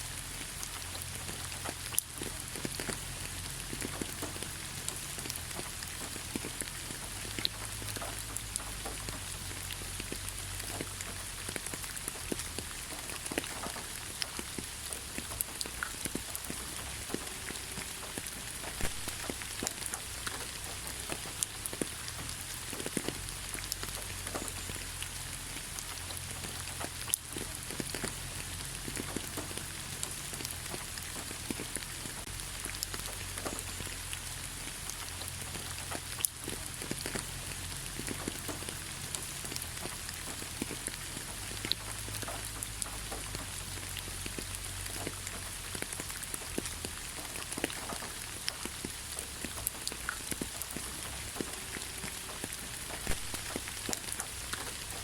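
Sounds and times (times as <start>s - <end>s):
light rain on leaves: 0.0s - 55.0s.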